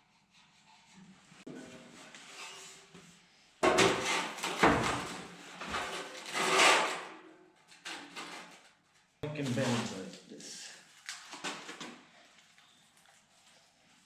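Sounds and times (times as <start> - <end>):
scraping and knocking on sheet metal: 3.6 - 8.6.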